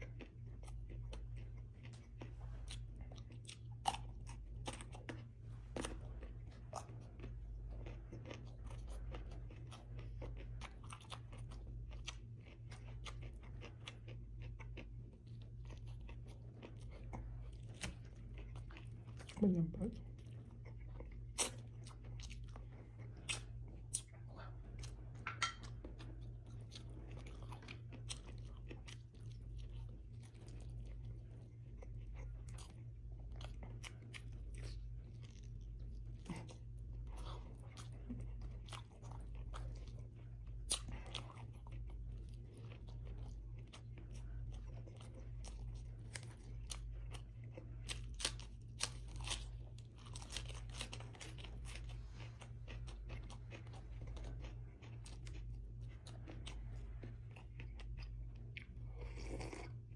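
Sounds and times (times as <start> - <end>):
steady low hum: 0.0 - 59.9
wet chewing and biting: 0.0 - 59.9
crisp lettuce crunches: 47.5 - 55.4.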